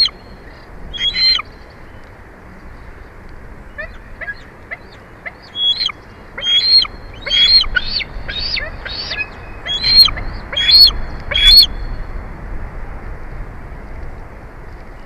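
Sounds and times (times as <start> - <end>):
eagle piping chirps: 0.0 - 2.0, 3.7 - 12.0
steady background hiss: 0.0 - 15.0.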